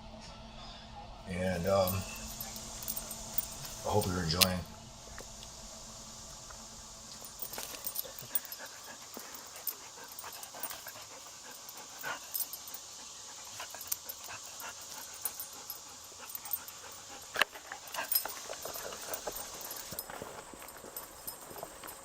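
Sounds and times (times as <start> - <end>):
dog panting: 1.6 - 4.6, 7.2 - 22.0
small clicks and rustles: 7.1 - 22.0.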